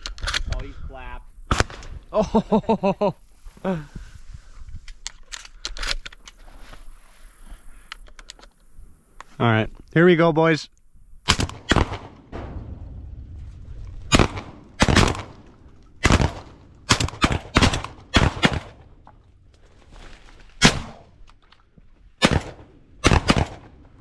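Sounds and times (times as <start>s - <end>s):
gunshots: 11.3s - 18.9s, 20.6s - 21.1s, 22.2s - 23.8s.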